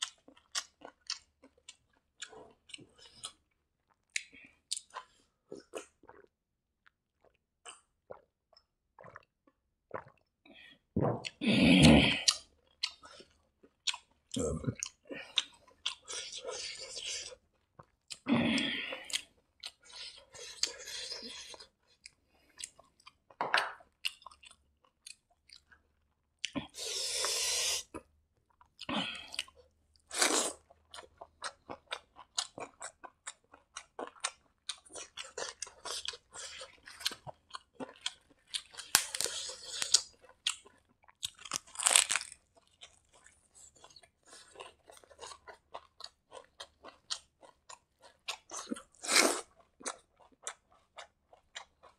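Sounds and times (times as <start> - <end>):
wet chewing and lip smacks: 0.0 - 10.3, 21.5 - 26.6, 30.7 - 51.9.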